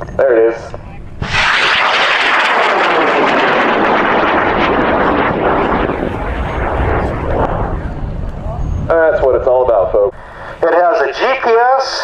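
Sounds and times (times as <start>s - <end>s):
rocket motor roaring: 1.1s - 8.9s.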